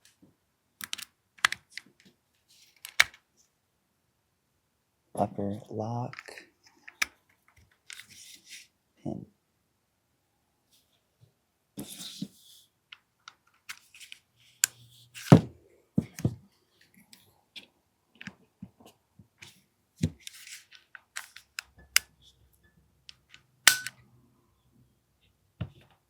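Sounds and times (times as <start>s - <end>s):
pistol parts clicking: 0.8s - 1.1s, 23.7s - 24.0s.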